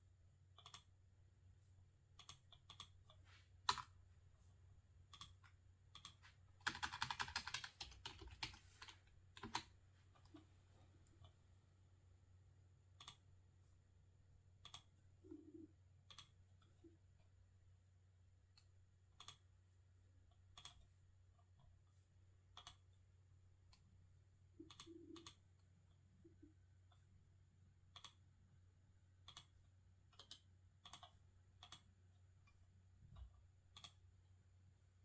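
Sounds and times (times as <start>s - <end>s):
computer mouse clicking: 0.6s - 0.9s, 2.2s - 3.9s, 5.1s - 10.4s, 13.0s - 13.2s, 14.6s - 14.9s, 16.1s - 16.4s, 18.6s - 19.5s, 20.4s - 20.9s, 22.5s - 22.9s, 24.6s - 25.5s, 27.9s - 28.2s, 29.2s - 31.9s, 33.7s - 34.0s.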